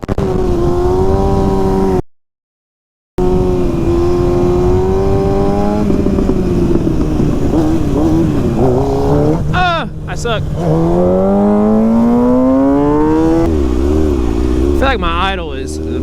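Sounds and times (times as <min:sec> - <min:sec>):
motorcycle engine running: 0:03.2 - 0:16.0.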